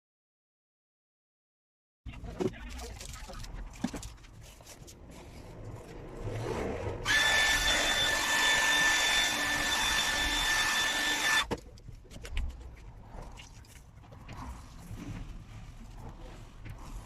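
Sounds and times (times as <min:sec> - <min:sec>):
electric power tool whine: 0:07.0 - 0:11.5.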